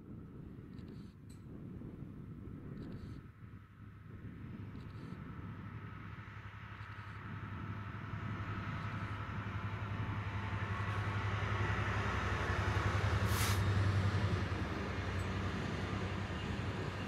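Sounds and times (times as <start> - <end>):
diesel locomotive engine drone: 0.0 - 17.0
wagons rumbling on rails: 6.2 - 17.0
brief hiss: 13.3 - 13.6.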